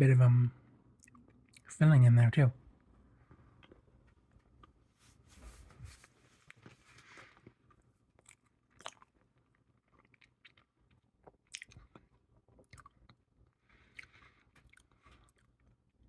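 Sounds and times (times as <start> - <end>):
chewing with wet mouth clicks: 1.0 - 1.7, 7.7 - 15.8.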